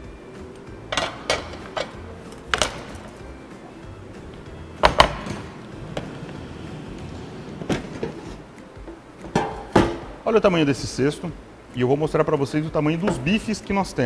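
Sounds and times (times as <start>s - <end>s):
air fryer basket knocking: 4.8s - 6.1s.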